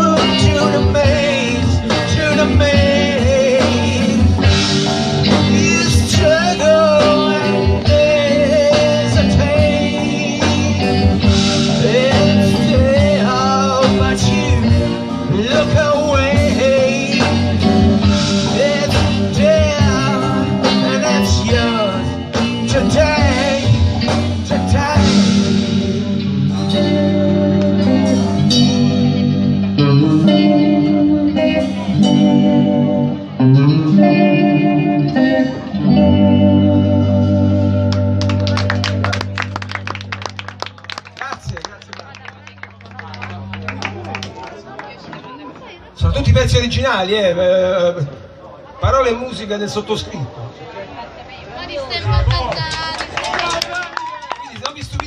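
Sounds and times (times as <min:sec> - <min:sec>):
person singing: 0:00.0 - 0:38.2
rock band guitar and bass: 0:00.0 - 0:49.9.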